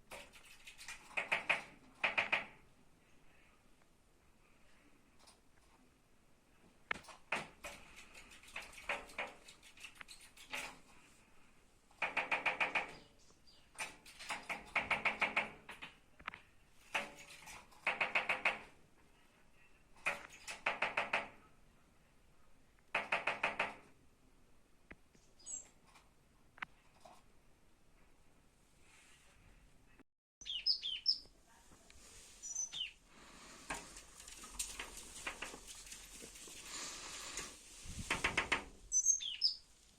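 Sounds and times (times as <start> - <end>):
bird tapping with beak: 0.1 - 2.6, 12.0 - 13.0, 13.8 - 16.0, 16.9 - 18.7, 20.0 - 21.3, 22.9 - 23.8, 38.0 - 38.7.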